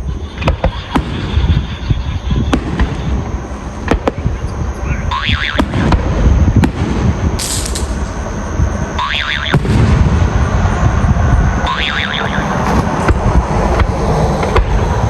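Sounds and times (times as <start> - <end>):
fireworks bangs and pops: 0.4 - 3.2, 3.8 - 4.4, 5.5 - 8.0, 9.5 - 10.3, 12.4 - 15.0
low rumble: 2.4 - 15.0
rising warbling whistle: 4.8 - 5.8, 9.0 - 9.7, 11.5 - 12.8.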